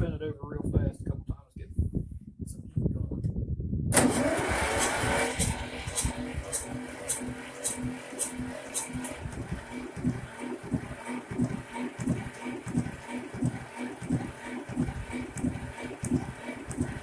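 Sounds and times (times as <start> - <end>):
diesel engine cranking by starter: 3.9 - 17.0.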